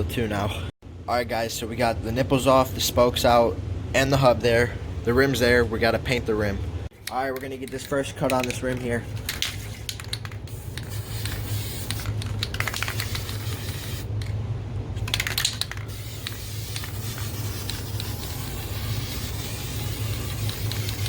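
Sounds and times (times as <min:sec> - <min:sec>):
spray paint can hissing: 0:10.5 - 0:14.1, 0:15.1 - 0:21.0.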